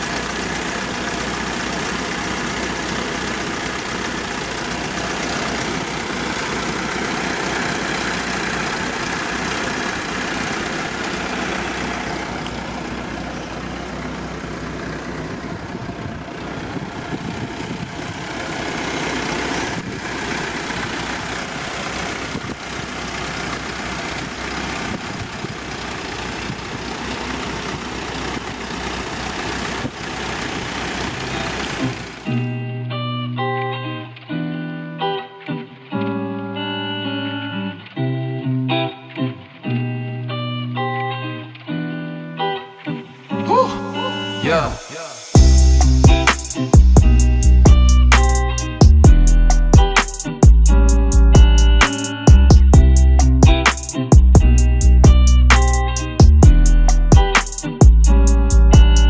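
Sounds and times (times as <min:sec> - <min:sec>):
car engine idling: 0:00.0 - 0:32.5, 0:43.5 - 0:59.0.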